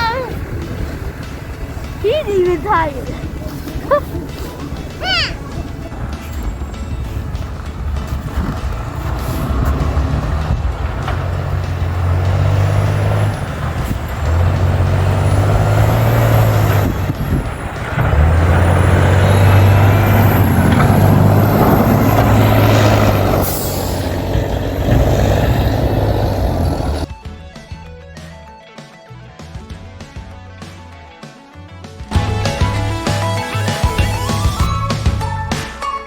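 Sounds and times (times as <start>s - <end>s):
heavy vehicle engine droning: 0.0s - 27.1s.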